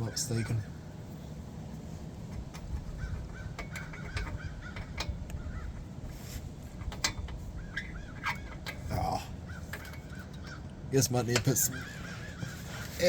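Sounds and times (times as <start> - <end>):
crows cawing: 3.0 - 5.8, 9.3 - 10.9, 11.5 - 13.0.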